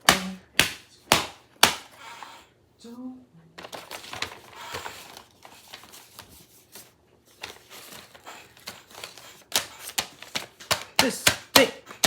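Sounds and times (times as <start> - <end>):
paper crinkling and rustling: 3.6 - 11.0.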